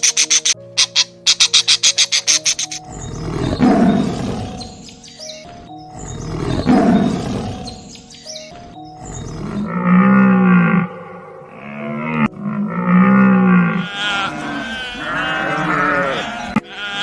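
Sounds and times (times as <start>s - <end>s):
light music: 0.0s - 17.0s
animal roaring: 3.1s - 4.7s, 6.1s - 7.8s, 9.2s - 17.0s
pitched animal call: 9.1s - 17.0s.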